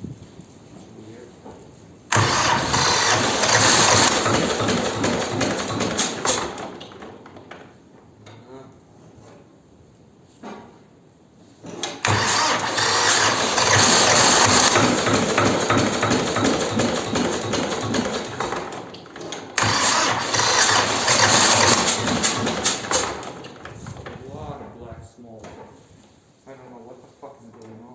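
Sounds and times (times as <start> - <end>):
diesel engine cranking: 2.1 - 7.8, 11.7 - 24.8.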